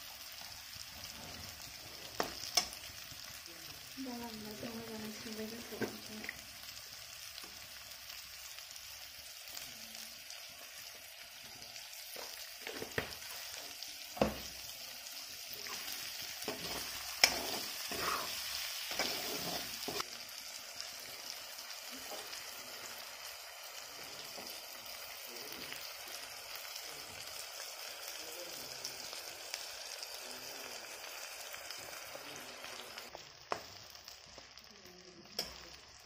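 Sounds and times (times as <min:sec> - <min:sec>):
food sizzling in oil: 0:00.0 - 0:36.0
spoon scraping and knocking pan: 0:12.1 - 0:13.3, 0:14.2 - 0:14.5, 0:15.6 - 0:20.0.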